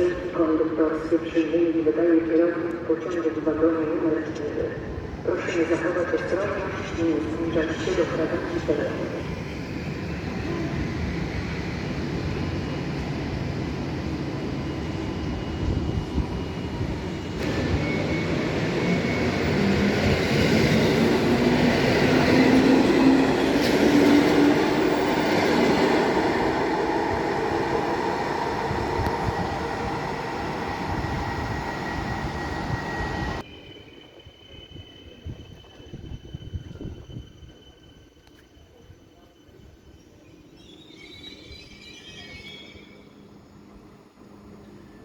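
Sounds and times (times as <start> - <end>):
train rumbling on tracks: 0.0 - 45.0
rising whine: 24.2 - 33.4.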